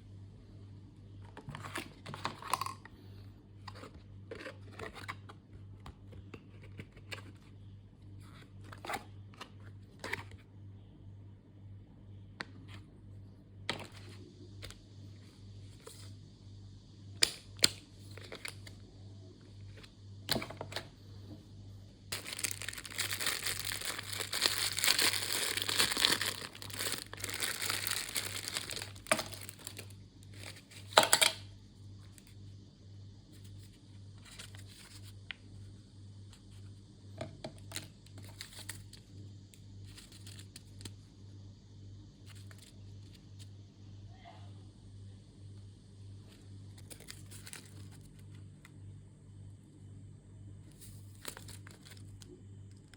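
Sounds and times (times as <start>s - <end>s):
low steady hum: 0.0s - 52.9s
plastic packaging crinkling: 22.1s - 31.0s, 46.8s - 48.4s, 50.7s - 52.8s.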